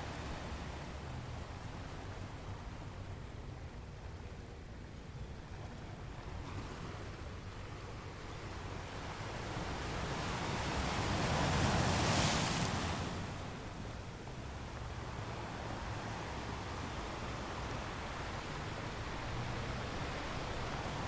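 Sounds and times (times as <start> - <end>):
ocean waves breaking: 9.3 - 21.0.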